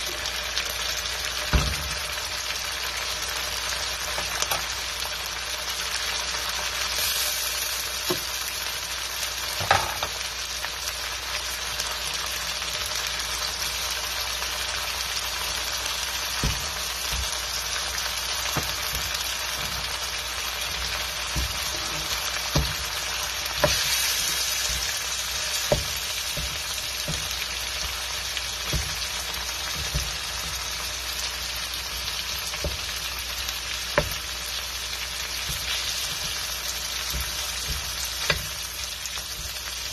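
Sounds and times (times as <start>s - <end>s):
meat and onions sizzling in wok: 0.0s - 39.9s
wooden spatula scraping wok: 15.2s - 33.1s, 33.9s - 39.9s.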